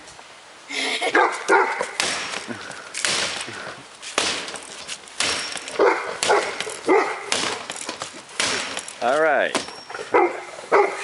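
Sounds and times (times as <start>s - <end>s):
dog barking: 1.1s - 2.0s, 5.8s - 7.3s, 10.0s - 11.0s.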